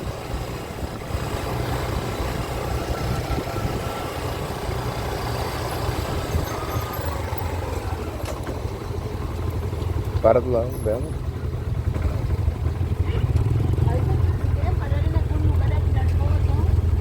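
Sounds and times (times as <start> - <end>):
motorcycle engine running: 0.0 - 17.0
road noise: 0.0 - 17.0.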